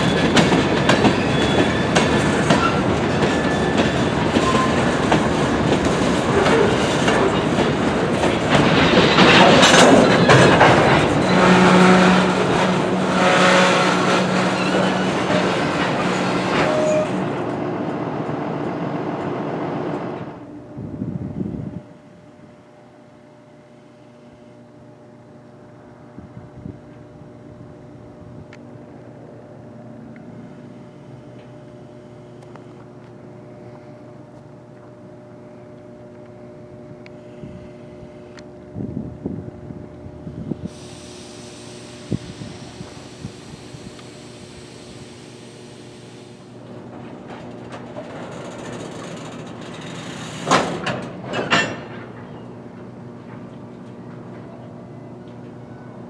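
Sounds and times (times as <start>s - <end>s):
loud bangs from train cars: 0.0s - 17.6s, 50.4s - 52.4s
freight train rolling past: 0.0s - 22.9s, 25.2s - 56.0s.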